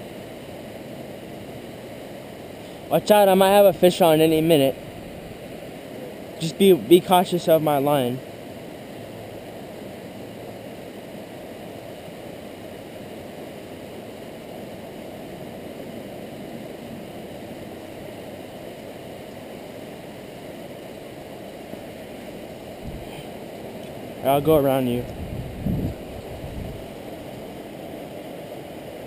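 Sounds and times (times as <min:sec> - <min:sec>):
river water flowing over rocks: 0:00.0 - 0:29.0.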